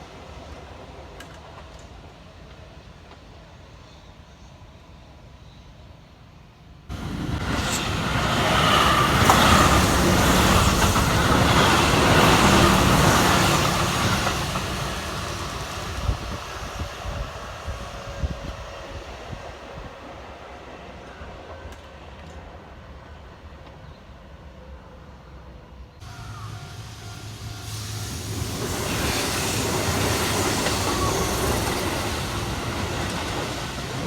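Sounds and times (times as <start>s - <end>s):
electric train passing: 0.0s - 34.0s
train wheel clicks: 1.1s - 3.2s, 7.4s - 15.8s.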